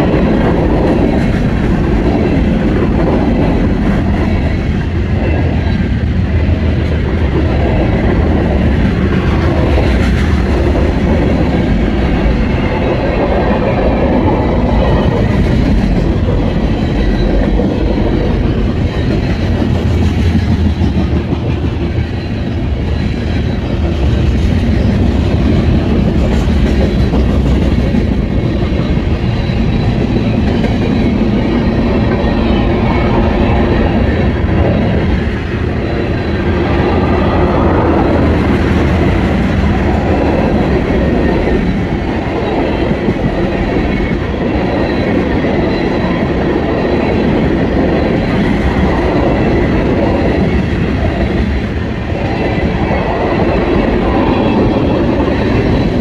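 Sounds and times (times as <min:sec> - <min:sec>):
freight train wheels rumbling on rail: 0:00.0 - 0:56.0.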